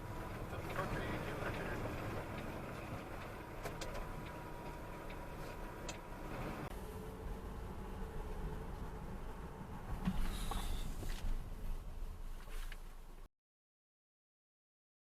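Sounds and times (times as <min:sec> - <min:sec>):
car driving road noise: 0:00.0 - 0:13.3.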